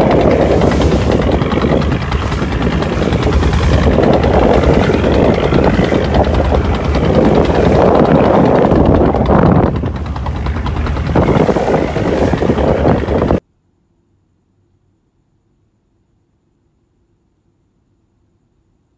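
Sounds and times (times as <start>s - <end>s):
boat engine droning: 0.0s - 13.4s
water wash: 0.0s - 13.4s.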